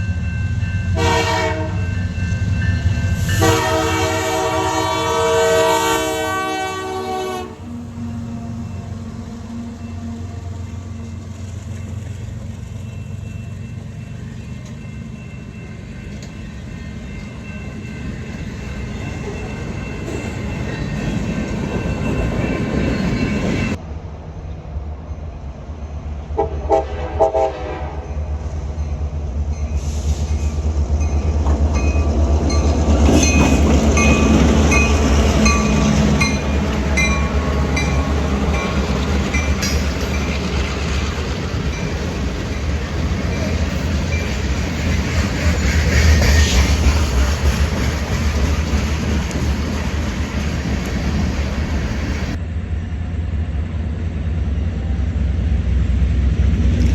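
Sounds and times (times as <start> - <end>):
train horn burst: 1.0 - 1.9, 3.2 - 10.6, 26.4 - 28.2
locomotive engine rumble: 28.4 - 56.9
wheels clattering on rail joints: 29.6 - 52.4.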